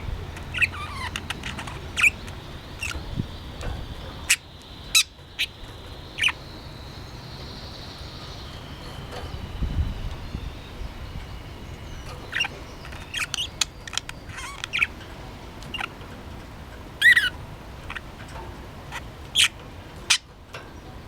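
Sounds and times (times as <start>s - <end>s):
budgerigar chirping: 0.1s - 9.2s, 10.4s - 15.0s, 15.7s - 16.0s, 17.0s - 18.0s.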